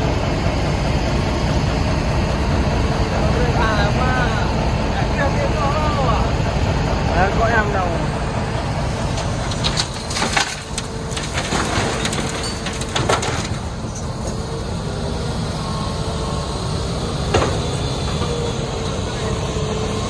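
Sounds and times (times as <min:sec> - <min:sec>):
excavator diesel engine: 0:00.0 - 0:20.0
rock clattering and cracking: 0:09.1 - 0:14.4.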